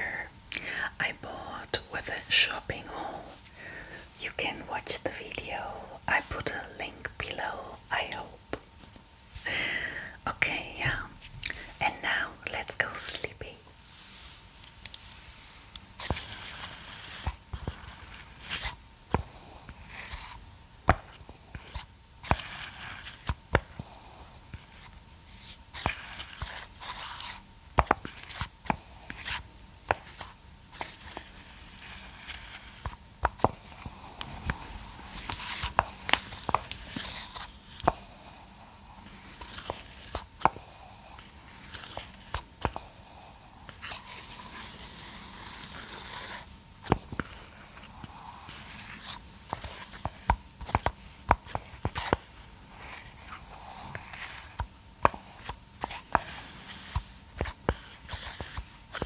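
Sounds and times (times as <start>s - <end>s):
soft rustling: 12.5s - 59.0s.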